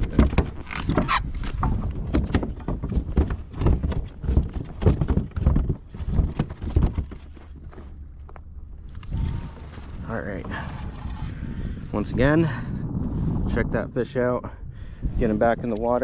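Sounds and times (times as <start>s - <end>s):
fish thrashing against plastic hull: 0.0s - 11.7s.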